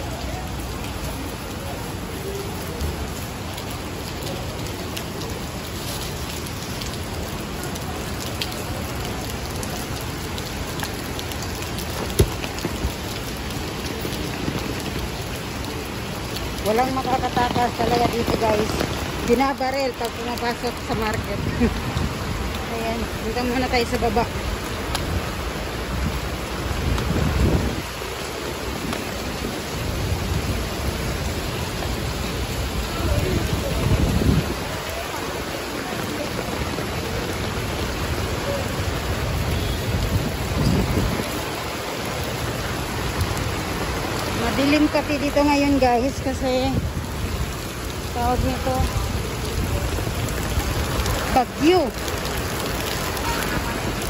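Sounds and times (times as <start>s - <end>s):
heavy rain falling: 0.0s - 54.0s
water drips ticking: 2.8s - 27.2s
wind rumbling on microphone: 8.2s - 54.0s.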